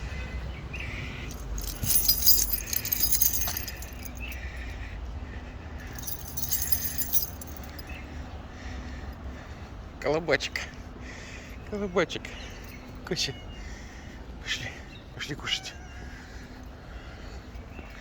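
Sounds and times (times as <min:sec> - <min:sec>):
high-pitched jingling rattle: 0:01.3 - 0:04.4, 0:05.9 - 0:07.8.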